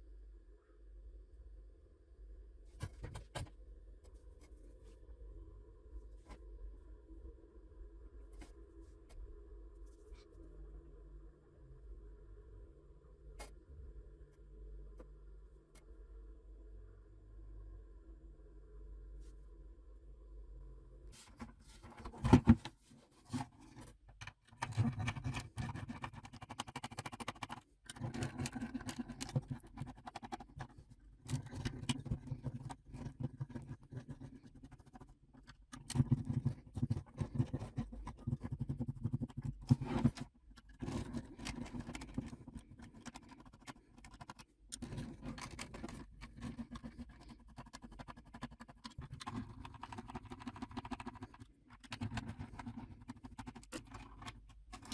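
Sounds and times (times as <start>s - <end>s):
rapid scratching and scraping: 21.2s - 54.9s.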